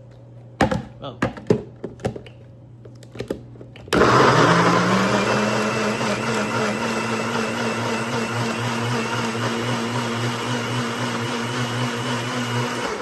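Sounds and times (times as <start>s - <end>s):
blender motor running: 4.0s - 13.0s.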